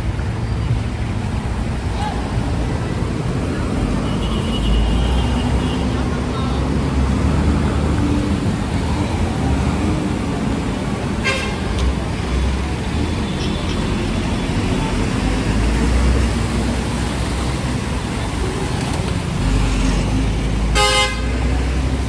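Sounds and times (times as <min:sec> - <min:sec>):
traffic engines rumbling: 0:00.0 - 0:22.0
car horn toot: 0:11.2 - 0:11.6, 0:20.7 - 0:21.4.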